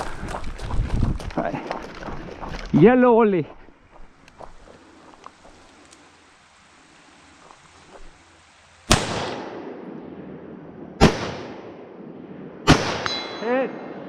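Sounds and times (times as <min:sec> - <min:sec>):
gunshots echoing: 0:08.9 - 0:10.3, 0:11.0 - 0:14.0.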